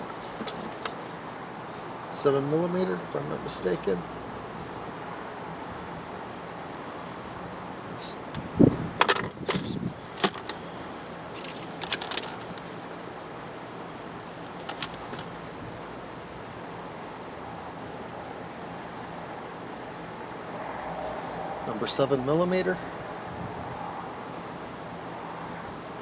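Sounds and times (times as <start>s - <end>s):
background hum: 3.3s - 21.6s
metal hand tools clinking: 11.4s - 12.8s, 14.4s - 15.3s.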